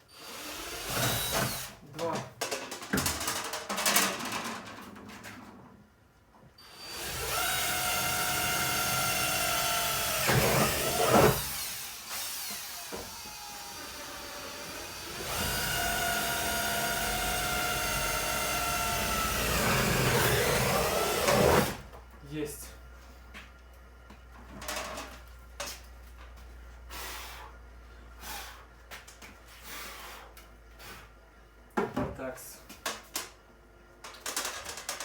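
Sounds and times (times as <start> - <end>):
electric drill whining: 0.2 - 1.7, 6.6 - 21.8.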